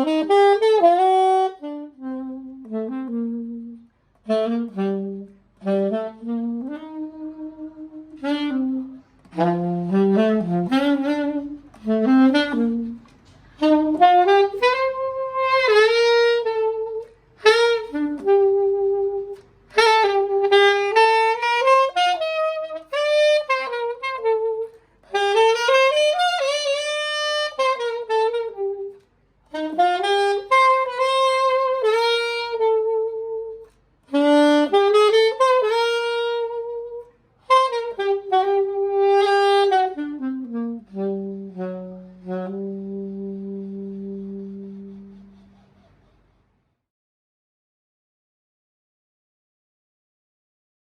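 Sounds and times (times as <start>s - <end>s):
solo alto saxophone: 0.0s - 46.9s.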